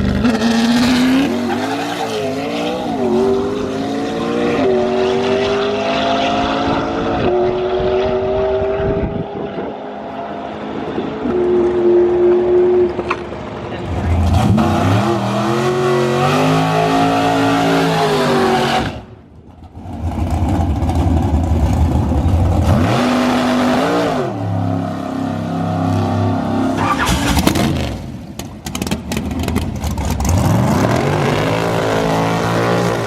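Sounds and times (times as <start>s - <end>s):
drag racing engine revving: 0.0s - 13.0s, 19.8s - 33.0s
exhaust pops and crackles: 28.3s - 30.4s.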